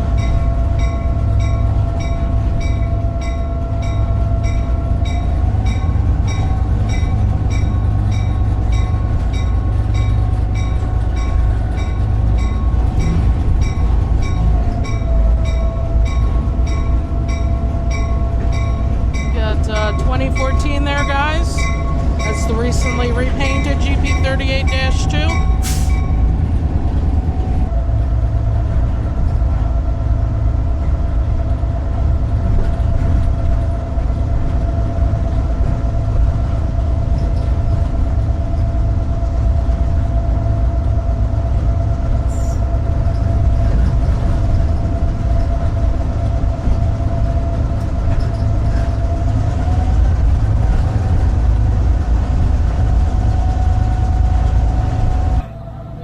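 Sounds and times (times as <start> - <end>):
locomotive diesel engine rumble: 0.0 - 56.0.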